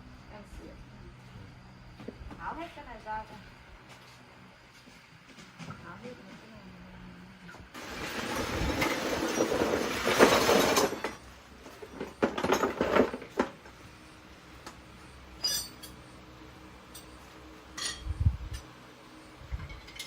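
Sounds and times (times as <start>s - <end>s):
metal tools clinking and clattering: 7.8s - 13.4s, 15.4s - 16.0s, 17.8s - 18.7s, 19.6s - 20.0s.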